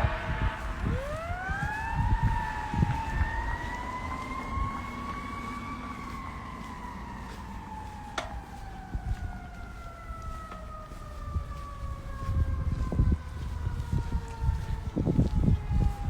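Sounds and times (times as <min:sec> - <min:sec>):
low rumbling thumps: 0:00.0 - 0:05.4
fire truck siren wailing: 0:00.0 - 0:16.0.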